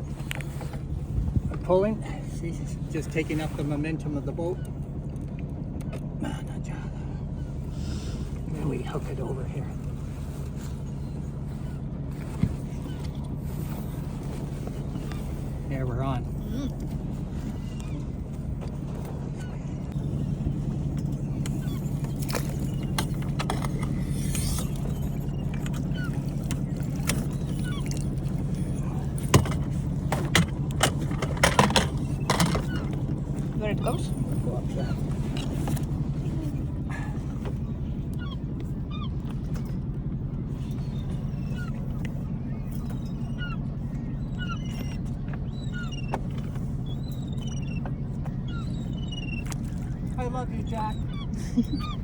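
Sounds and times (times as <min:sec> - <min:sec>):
boat engine humming: 0:00.0 - 0:52.0
low motor drone: 0:00.0 - 0:52.0
small birds chirping: 0:31.9 - 0:52.0.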